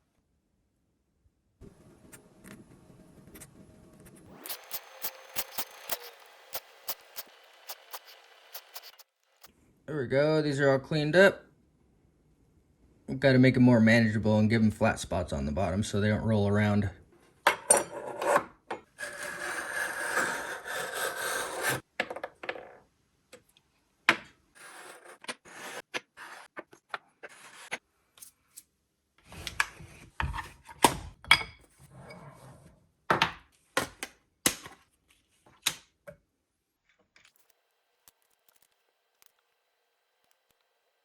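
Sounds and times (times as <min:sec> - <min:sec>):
file rasping on metal: 0:19.0 - 0:21.8.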